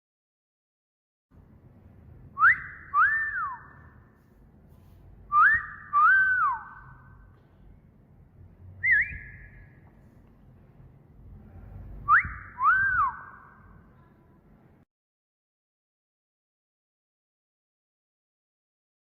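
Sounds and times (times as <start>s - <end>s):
wolf whistle: 2.4s - 4.0s, 5.3s - 7.2s, 8.8s - 9.7s, 12.0s - 13.7s.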